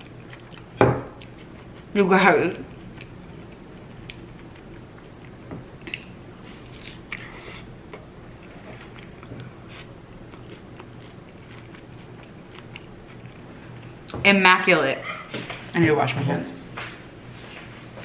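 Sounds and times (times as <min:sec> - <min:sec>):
crunchy tortilla chewing: 0:00.0 - 0:02.0, 0:02.6 - 0:14.0.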